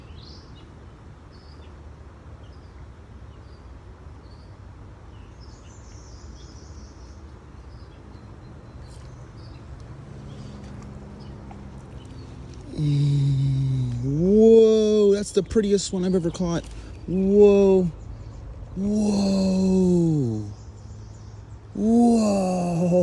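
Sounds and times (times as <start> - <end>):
steady low rumble: 9.2 - 20.8.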